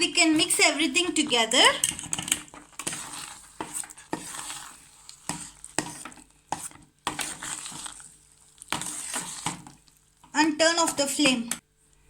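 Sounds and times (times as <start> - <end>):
utensil stirring mashed potatoes: 0.2 - 11.6
utensil scraping and knocking pan: 1.2 - 8.1, 8.7 - 9.8.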